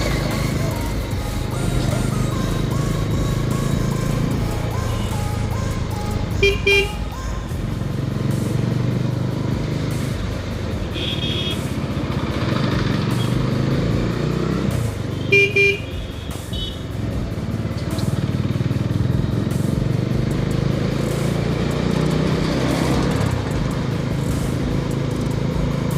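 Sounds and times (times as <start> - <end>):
motorcycle engine running: 0.0 - 25.9
vehicle horn honking: 6.3 - 7.3, 10.8 - 11.8, 15.2 - 16.9.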